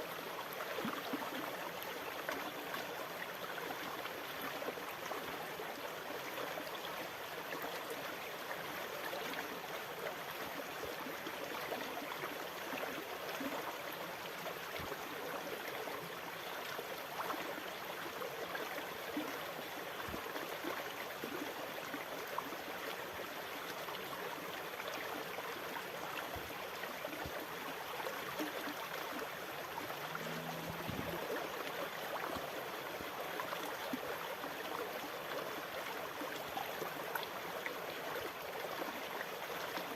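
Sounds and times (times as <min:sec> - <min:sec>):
water rushing and gurgling: 0:24.7 - 0:39.9.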